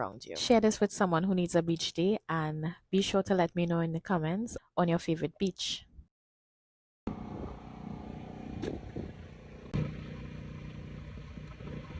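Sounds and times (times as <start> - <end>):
motor-like hum: 7.1 - 11.9.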